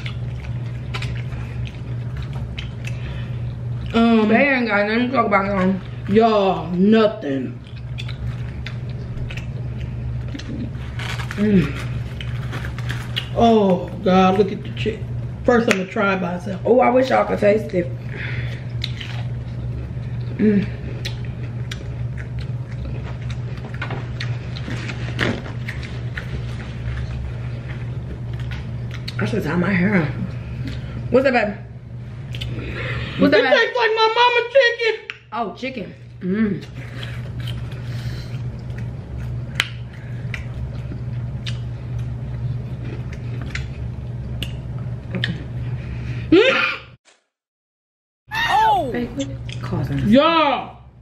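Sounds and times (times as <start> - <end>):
wet chewing clicks and smacks: 0.0 - 3.0, 7.6 - 10.6, 21.0 - 24.7, 28.3 - 29.2, 38.5 - 42.2
chewing fried chicken: 0.0 - 4.3, 7.5 - 13.5, 18.5 - 29.3, 36.0 - 45.8
steady low hum: 0.0 - 47.0, 48.3 - 51.0
wet mouth clicks and smacks: 41.4 - 41.7.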